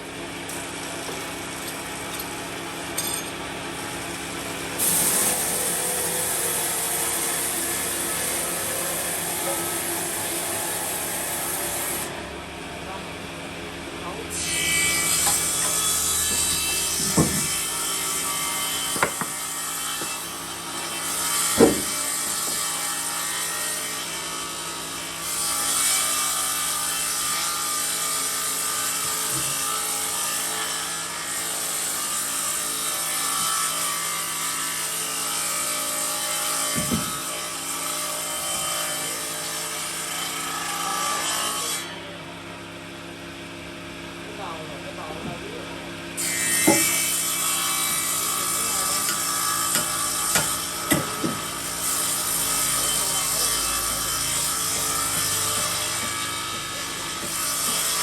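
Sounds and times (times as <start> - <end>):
saw cutting through wood: 0.0 - 58.0
sharp knocks: 15.2 - 17.6, 21.5 - 22.6.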